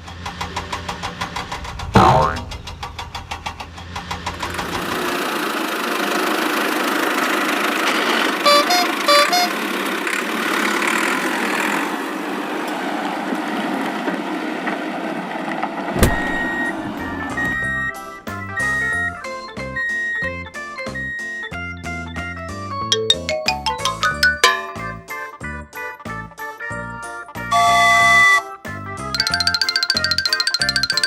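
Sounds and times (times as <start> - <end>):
vehicle engine running: 0.0 - 12.5
horn beeps: 8.4 - 9.6, 27.5 - 28.5
cheerful electronic tune: 8.5 - 9.6, 22.9 - 25.4, 29.2 - 31.0.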